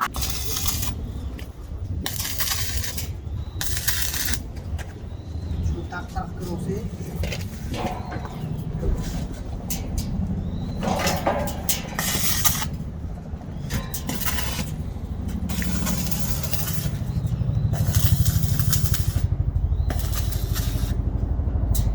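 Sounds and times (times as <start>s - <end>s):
welding arc crackling: 0.0s - 4.8s, 9.4s - 21.9s
low machine hum: 0.0s - 21.9s.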